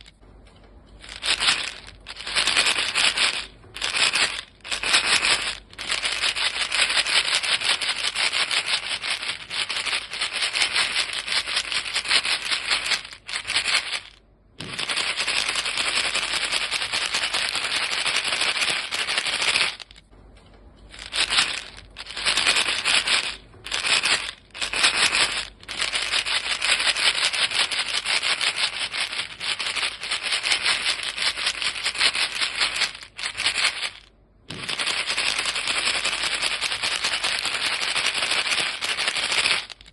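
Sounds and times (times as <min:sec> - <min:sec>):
chewing gum rattling in box: 0:01.0 - 0:20.0, 0:20.9 - 0:39.9.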